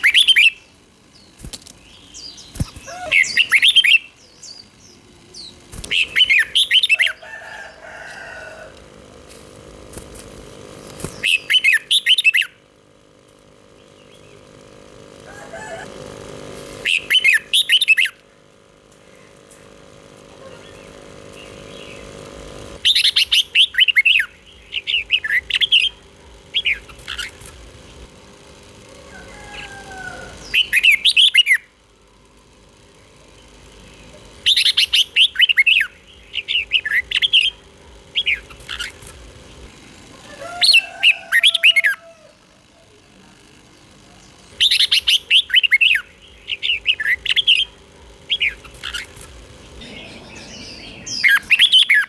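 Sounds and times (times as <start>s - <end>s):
bird singing warbled phrases: 0.0s - 8.6s, 11.0s - 12.8s, 13.7s - 14.6s, 16.8s - 18.3s, 20.4s - 28.1s, 29.1s - 31.8s, 33.1s - 39.7s, 44.0s - 52.0s
faint steady hum: 0.0s - 52.0s.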